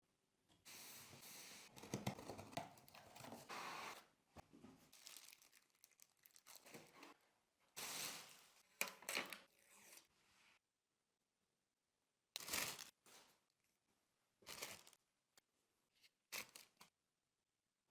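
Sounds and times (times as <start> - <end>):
packaging tearing and crinkling: 5.0 - 6.7.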